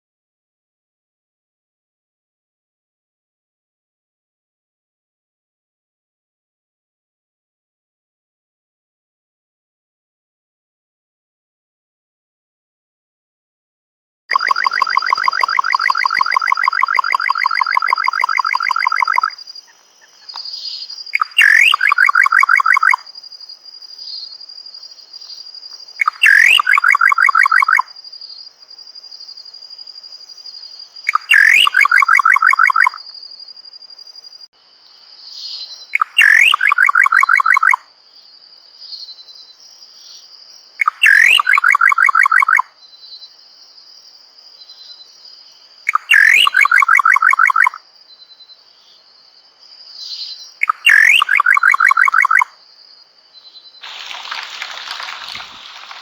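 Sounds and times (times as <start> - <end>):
bird whistling call: 14.3 - 23.0, 26.0 - 27.9, 31.1 - 33.0, 36.0 - 37.8, 40.8 - 42.7, 45.9 - 47.8, 50.6 - 52.5
insect trill: 14.3 - 56.0.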